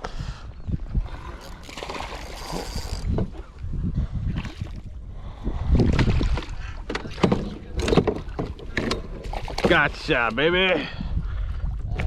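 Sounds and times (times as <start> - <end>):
thumps and knocks against kayak: 5.8 - 10.4.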